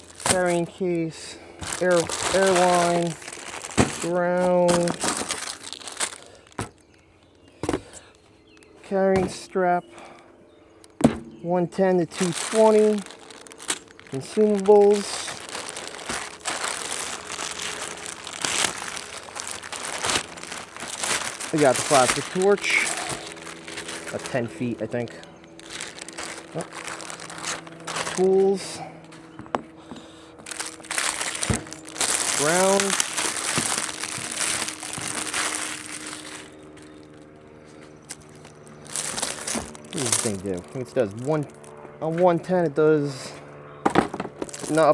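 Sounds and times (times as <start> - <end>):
plastic packaging crinkling: 0.0 - 0.8, 1.6 - 6.8, 12.0 - 28.7, 30.4 - 37.4, 38.0 - 41.7, 44.4 - 44.9.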